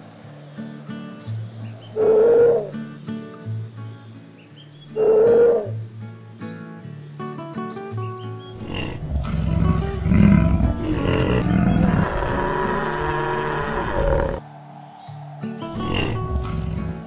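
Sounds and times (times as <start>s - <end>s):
acoustic guitar music: 0.0s - 12.3s, 15.4s - 17.0s
large animal calling: 1.8s - 3.0s, 4.9s - 5.8s, 8.5s - 14.4s, 15.6s - 17.0s.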